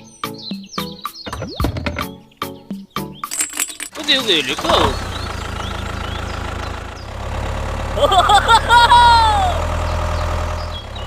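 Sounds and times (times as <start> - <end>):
tractor engine droning: 3.9 - 11.0.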